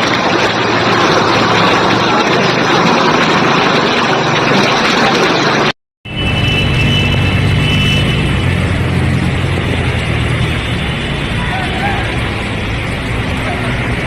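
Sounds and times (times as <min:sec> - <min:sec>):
traffic din on wet street: 0:00.0 - 0:14.0
heavy vehicle engine humming: 0:05.5 - 0:14.0.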